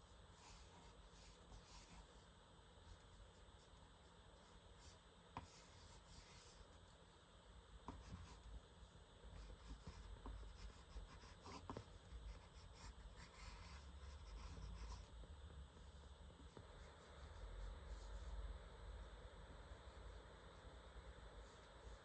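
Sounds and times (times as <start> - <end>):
pen scratching on paper: 7.9 - 8.5, 9.3 - 15.2.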